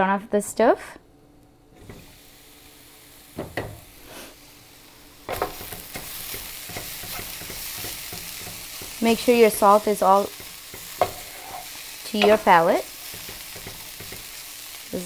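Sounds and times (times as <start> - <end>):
vegetables sizzling in oil: 1.8 - 15.0
wooden spatula stirring: 5.4 - 14.4.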